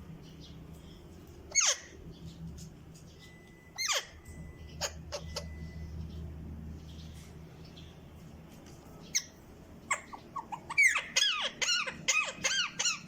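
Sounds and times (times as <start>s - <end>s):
parrot squeaky calls: 1.5s - 2.0s, 3.7s - 5.8s, 9.1s - 13.0s.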